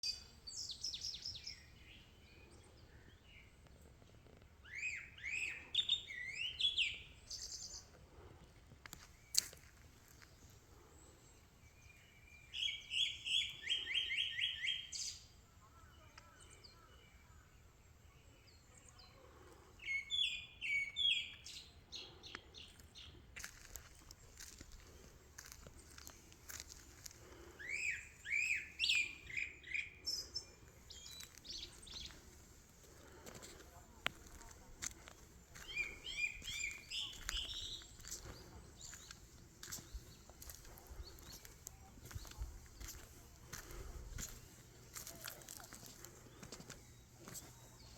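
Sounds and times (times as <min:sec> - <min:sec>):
songbird whistling: 0:04.7 - 0:07.5, 0:27.6 - 0:32.1, 0:35.6 - 0:38.2.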